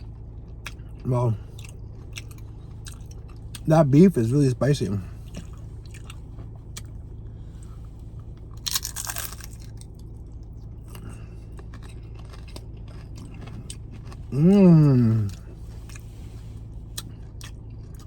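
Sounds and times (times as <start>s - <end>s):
low hum: 0.0s - 18.0s
crunching tortilla chips: 8.3s - 16.2s.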